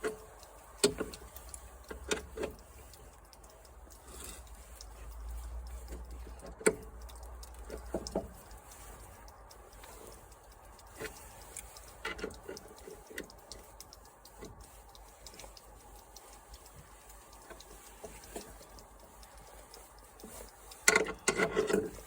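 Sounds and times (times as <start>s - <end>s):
metallic tool clicks: 20.2s - 22.0s.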